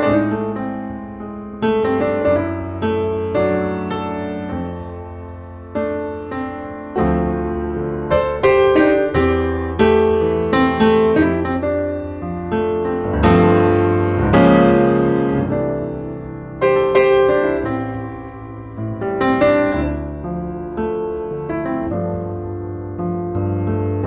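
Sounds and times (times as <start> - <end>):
solo piano: 0.0 - 24.0.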